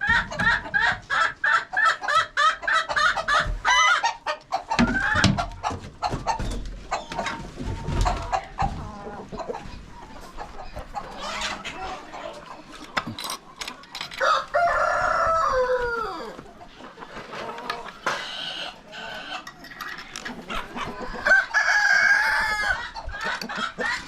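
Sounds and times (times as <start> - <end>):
chickens clucking: 0.0 - 24.0
rooster crowing: 14.2 - 16.3, 21.2 - 22.8.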